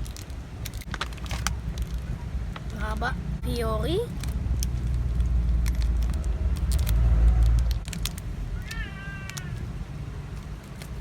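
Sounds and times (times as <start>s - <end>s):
clicks and crackles: 0.0s - 2.9s, 4.1s - 11.0s
high-pitched animal-like cry: 8.5s - 9.7s.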